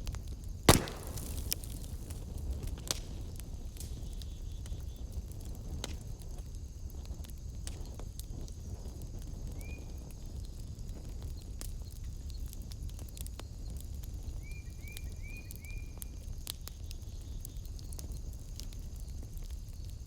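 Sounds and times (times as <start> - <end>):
low rumble of flames: 0.0 - 14.5, 16.0 - 20.0
wood fire crackling and popping: 0.7 - 9.4.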